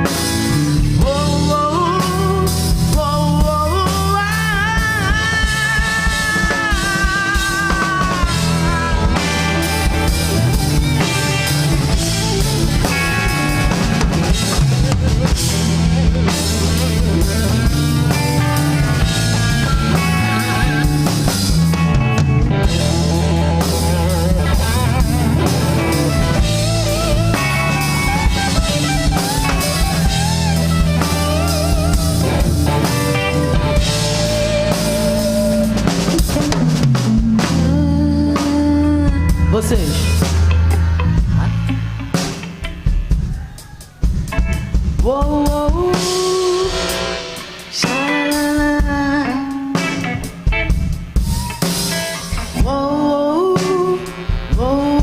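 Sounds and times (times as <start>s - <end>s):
live rock band playing: 0.0s - 55.0s
wavering lead guitar line: 0.0s - 55.0s.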